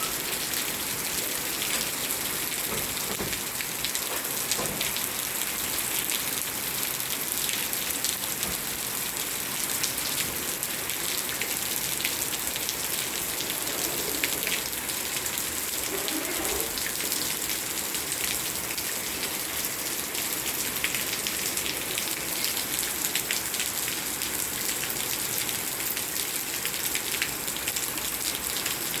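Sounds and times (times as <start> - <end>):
raindrops ticking on surfaces: 0.0 - 29.0
steady rain hiss: 0.1 - 29.0.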